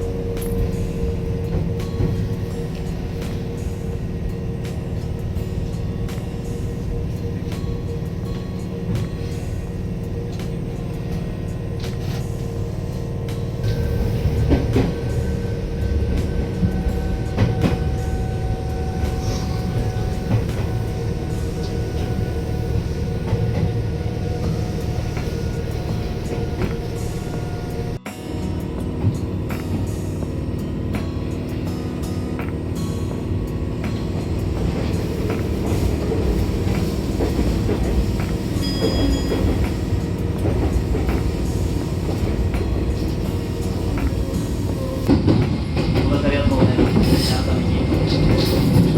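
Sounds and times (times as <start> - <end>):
electric train rumbling on rails: 0.0 - 48.9
high wheel squeal: 13.6 - 28.0, 34.8 - 45.2.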